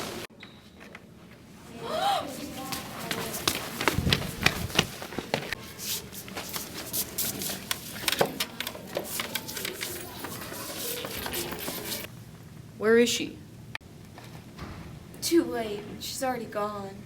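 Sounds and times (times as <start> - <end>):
faint voices: 1.5 - 12.1
handling noises: 2.3 - 12.1.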